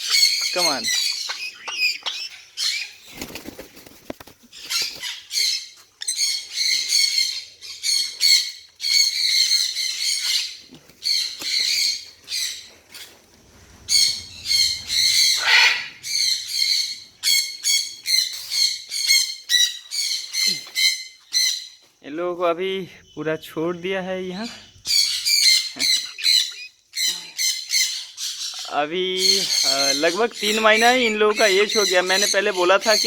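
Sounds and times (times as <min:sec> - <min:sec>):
parrot chicks squawking: 0:00.0 - 0:21.8, 0:24.2 - 0:33.0
wing flapping: 0:02.9 - 0:05.2, 0:13.0 - 0:16.1.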